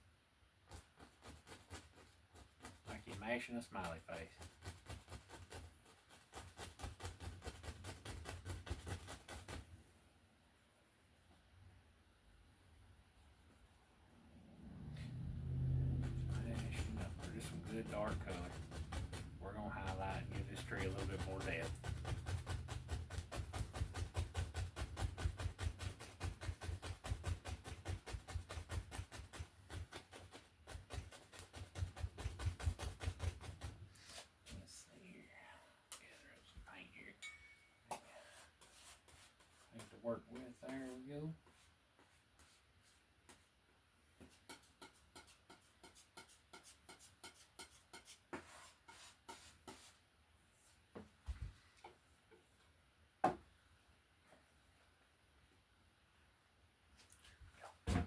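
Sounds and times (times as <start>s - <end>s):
brush scraping canvas: 0.6s - 9.7s, 15.0s - 34.8s, 38.2s - 43.5s, 44.2s - 50.8s
paint brush dabbing on canvas: 0.6s - 9.7s, 15.0s - 34.8s, 37.9s - 43.6s, 44.2s - 52.0s
paintbrush tapping: 15.9s - 33.7s.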